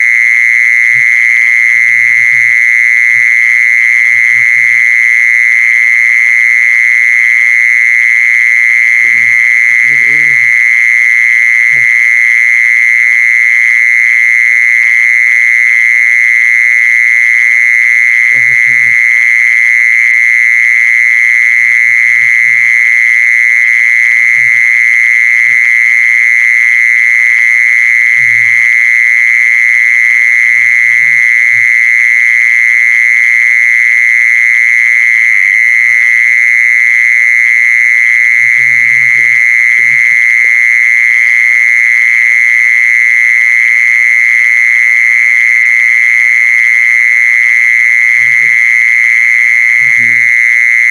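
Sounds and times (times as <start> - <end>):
insect high trill: 0.0 - 12.7, 18.0 - 19.5, 46.0 - 50.9.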